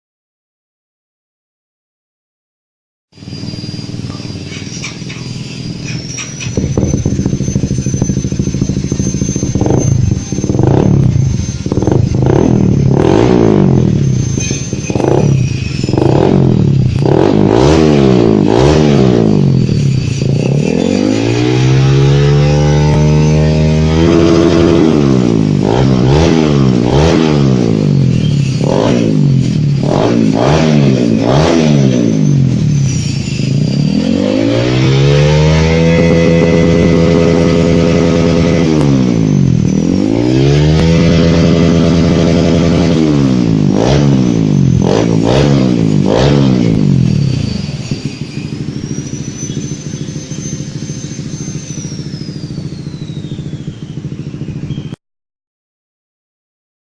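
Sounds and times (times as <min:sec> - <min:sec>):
motorcycle engine idling: 0:03.2 - 0:17.2, 0:46.7 - 0:54.9
motorcycle engine revving: 0:03.2 - 0:55.0.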